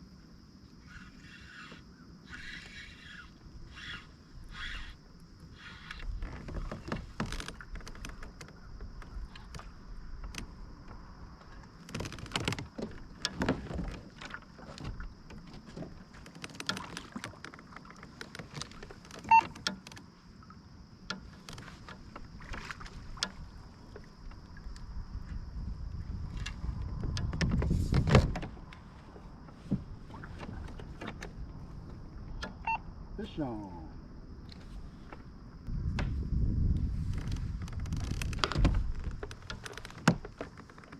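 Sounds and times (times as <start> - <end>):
knocks and clatter on kayak: 5.6 - 20.2, 20.9 - 32.8, 34.5 - 40.9.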